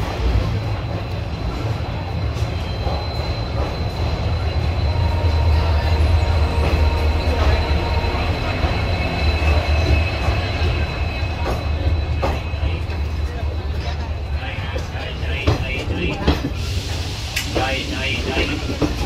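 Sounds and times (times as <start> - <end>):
train wheels rumbling on rails: 0.0 - 19.0
high wheel squeal: 2.4 - 13.1.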